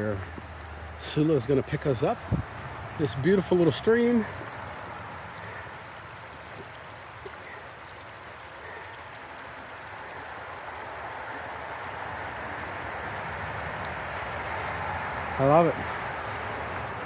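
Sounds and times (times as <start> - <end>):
stream running: 0.0 - 17.0.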